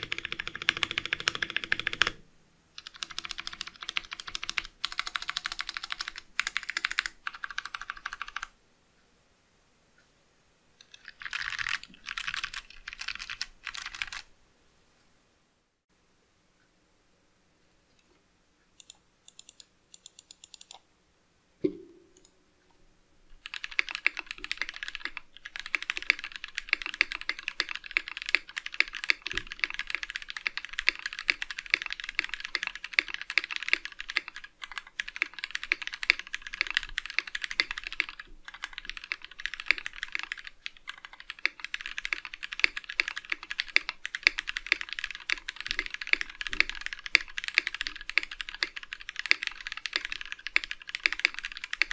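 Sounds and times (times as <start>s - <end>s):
mechanical keyboard typing: 0.0s - 2.2s, 2.8s - 8.6s, 10.8s - 14.3s, 18.8s - 20.8s, 23.4s - 51.9s.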